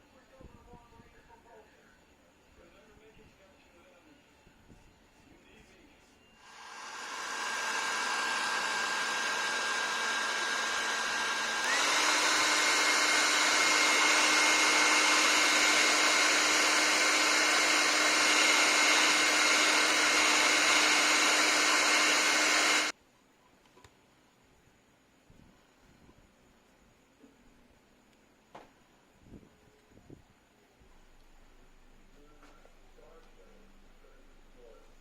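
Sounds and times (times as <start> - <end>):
electric hot-air blower running: 6.4 - 22.9.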